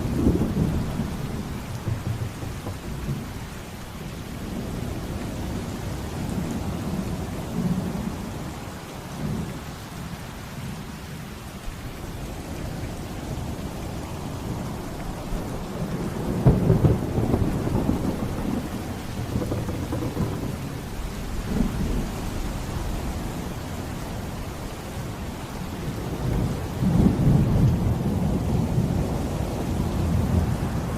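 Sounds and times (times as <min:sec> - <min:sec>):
rolling thunder: 0:00.0 - 0:05.6, 0:15.2 - 0:23.5, 0:25.8 - 0:30.6
steady rain: 0:00.0 - 0:30.9.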